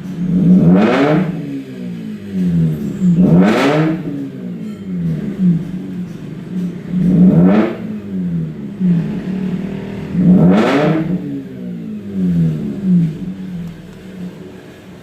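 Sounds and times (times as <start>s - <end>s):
rotary engine revving: 0.0s - 15.0s
lumpy engine idle: 4.5s - 10.2s.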